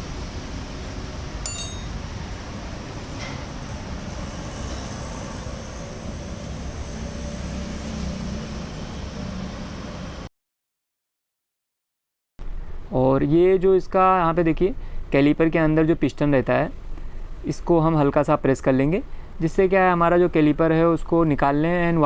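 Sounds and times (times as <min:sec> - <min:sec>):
road traffic rumble: 0:00.0 - 0:10.3.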